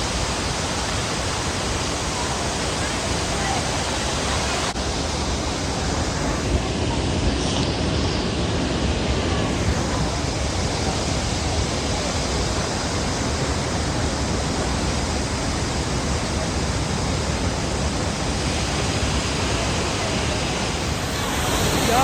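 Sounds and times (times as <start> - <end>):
waterfall rushing: 0.0 - 7.1, 7.8 - 22.0.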